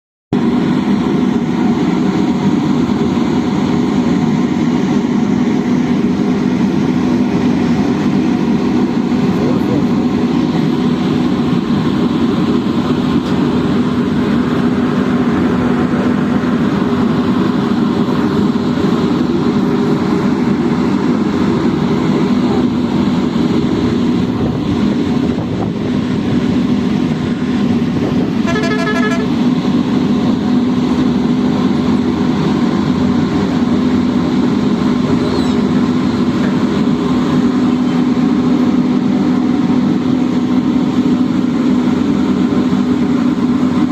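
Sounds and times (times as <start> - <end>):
large engine humming: 0.3 - 43.9
horn toot: 28.4 - 29.4.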